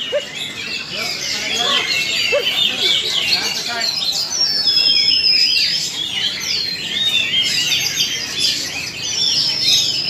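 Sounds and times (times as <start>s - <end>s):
magpie-robins singing: 0.0s - 10.0s.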